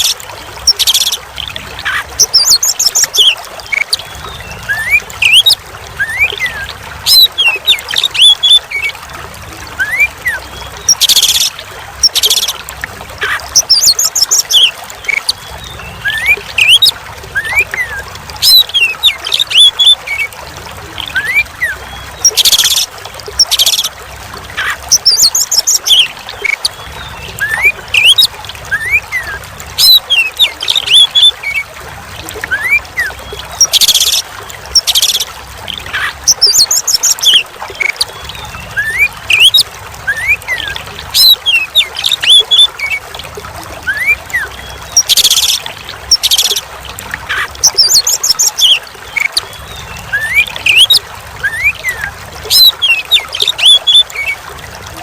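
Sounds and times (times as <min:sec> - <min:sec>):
water trickling: 0:00.0 - 0:55.0
bird singing whistles and trills: 0:00.4 - 0:08.9, 0:09.8 - 0:12.6, 0:13.2 - 0:20.3, 0:24.6 - 0:31.6, 0:35.9 - 0:43.0, 0:43.8 - 0:46.6, 0:47.3 - 0:54.4.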